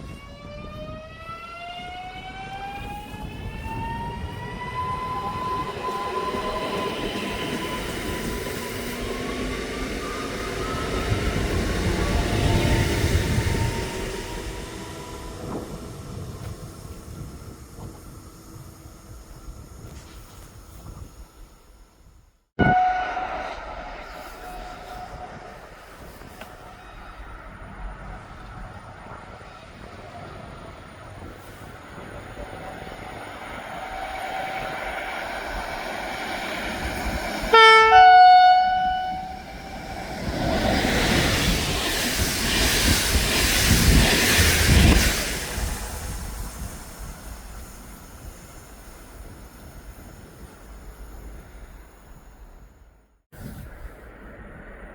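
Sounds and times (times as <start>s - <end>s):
train rumbling: 0.0s - 54.9s
two-note train horn: 22.6s - 23.6s, 37.5s - 39.6s.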